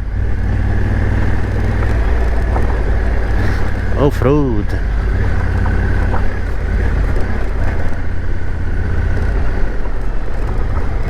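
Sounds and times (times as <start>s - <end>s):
motorcycle engine rumble: 0.0s - 11.0s.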